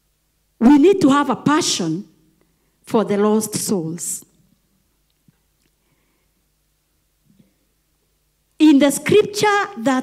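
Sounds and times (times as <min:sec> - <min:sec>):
tiny faint clicks: 0:04.5 - 0:05.8.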